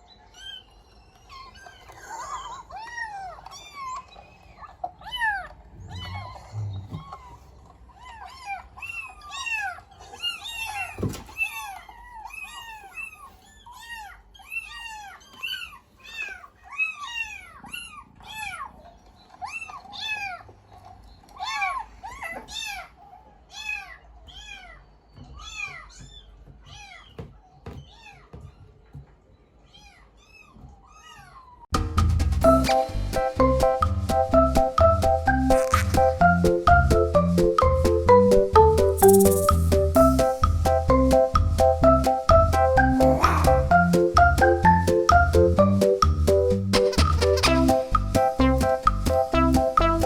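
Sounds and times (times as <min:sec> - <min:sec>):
cat meowing: 0:05.0 - 0:07.4.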